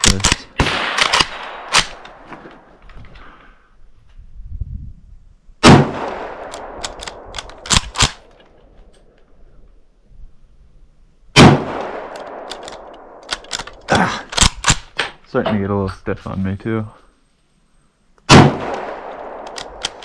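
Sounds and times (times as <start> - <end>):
rifle bolt metallic clicks: 0.0 - 2.2, 6.4 - 9.3, 12.1 - 15.2, 18.7 - 20.0
rifle shots echoing: 0.0 - 2.7, 5.6 - 8.3, 11.3 - 14.9, 18.3 - 20.0.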